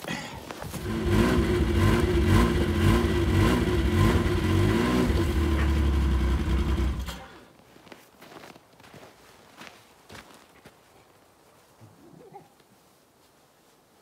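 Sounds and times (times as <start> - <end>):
tracked machine engine running: 0.6 - 7.3.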